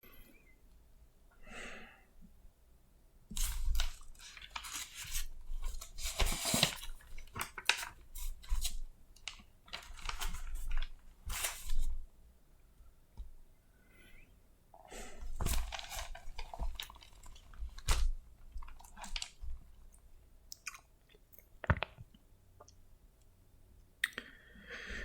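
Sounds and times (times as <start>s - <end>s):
rustling and crinkling handling: 3.3s - 12.1s, 15.1s - 20.2s.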